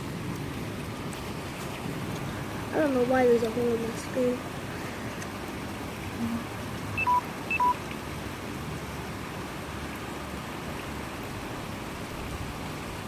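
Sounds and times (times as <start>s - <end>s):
heavy rain hissing: 0.0s - 13.0s
short electronic beeps: 7.0s - 7.8s.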